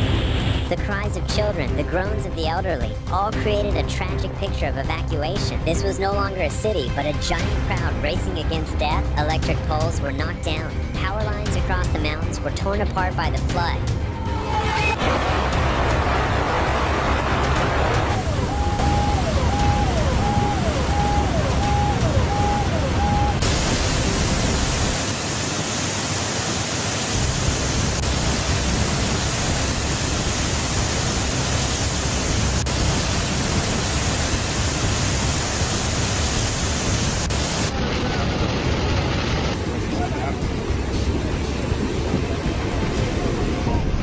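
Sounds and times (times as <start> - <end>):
rushing water roar: 14.2 - 44.0
repeating falling tone: 18.0 - 23.4.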